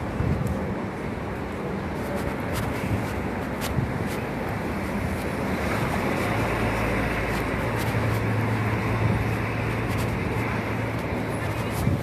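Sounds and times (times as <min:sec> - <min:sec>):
dense traffic rumble: 0:00.0 - 0:12.0
idling vehicle engine hum: 0:04.2 - 0:12.0.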